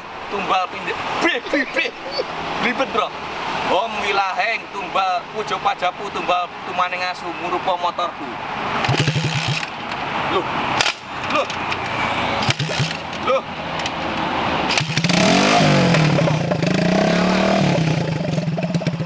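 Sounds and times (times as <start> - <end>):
motorcycle engine revving: 8.6 - 19.0
motorcycle engine cranking: 8.8 - 19.0.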